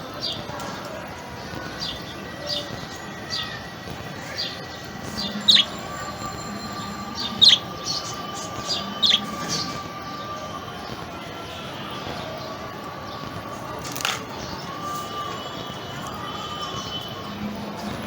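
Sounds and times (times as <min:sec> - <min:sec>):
budgerigar chirping: 0:05.2 - 0:09.7.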